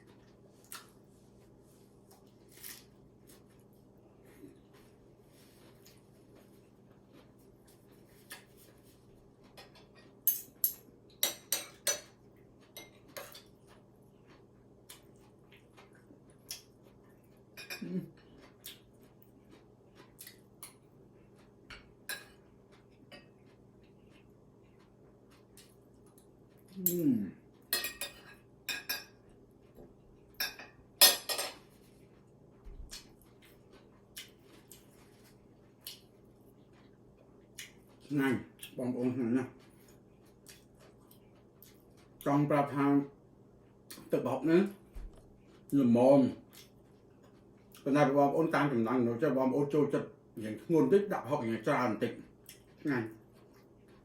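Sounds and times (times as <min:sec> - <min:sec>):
cutlery clinking on plates: 0:09.5 - 0:13.6, 0:27.7 - 0:29.2, 0:30.4 - 0:31.7.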